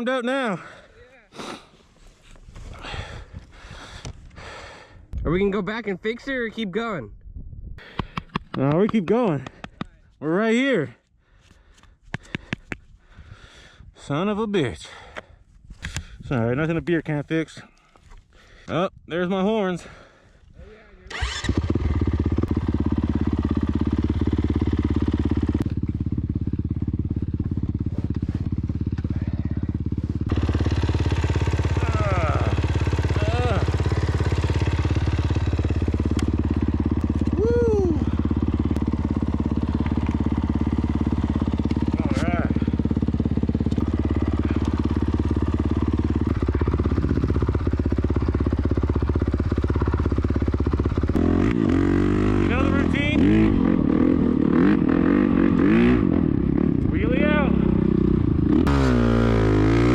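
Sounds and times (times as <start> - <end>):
dirt bike engine idling: 2.6 - 5.0, 19.8 - 59.9
loud engine revving: 30.3 - 47.6, 51.1 - 59.9.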